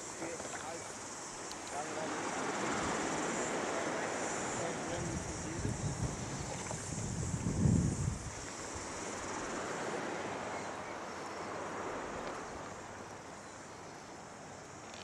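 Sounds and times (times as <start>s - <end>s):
water rushing: 0.0s - 13.4s
wind buffeting microphone: 2.1s - 9.9s.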